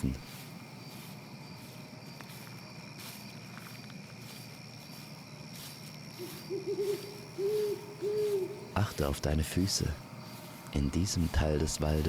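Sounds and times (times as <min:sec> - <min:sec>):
footsteps on forest floor: 0:00.0 - 0:12.0
insects chirping: 0:00.0 - 0:12.0
owl hooting: 0:06.2 - 0:09.0.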